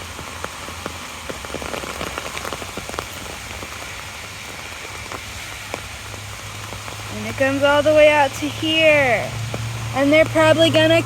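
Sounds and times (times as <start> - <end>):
rain on an umbrella: 0.0 - 11.0.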